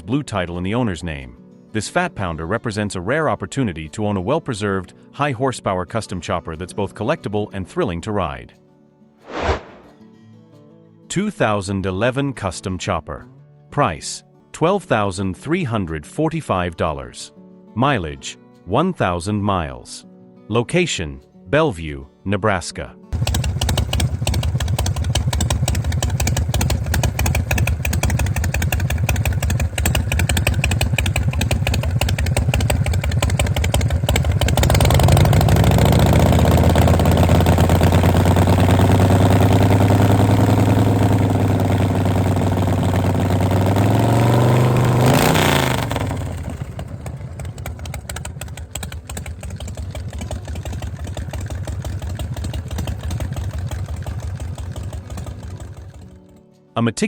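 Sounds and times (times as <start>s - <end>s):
motorcycle engine idling and revving: 23.2s - 56.4s.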